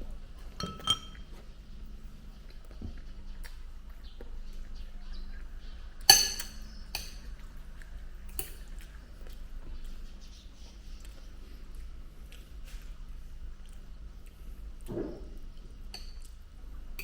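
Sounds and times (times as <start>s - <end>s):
low steady hum: 0.0s - 17.0s
tableware clinking: 0.6s - 1.3s, 6.1s - 7.2s.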